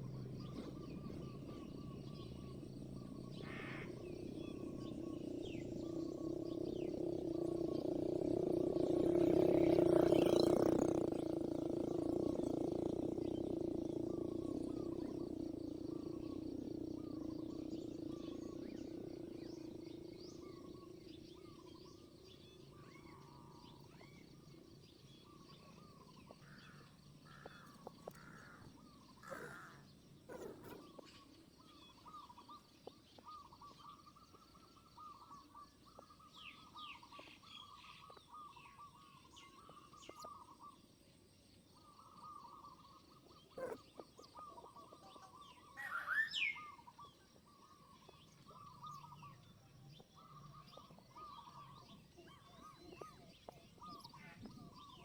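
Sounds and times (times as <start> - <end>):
low steady drone: 0.0 - 22.6
small birds chirping: 0.0 - 55.0.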